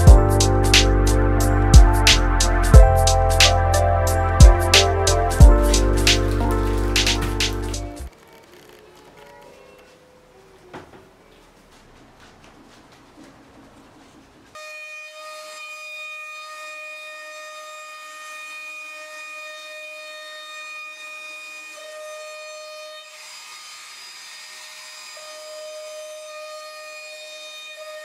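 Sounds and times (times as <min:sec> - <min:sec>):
power tool cutting wood: 0:02.1 - 0:09.9, 0:14.5 - 0:28.0.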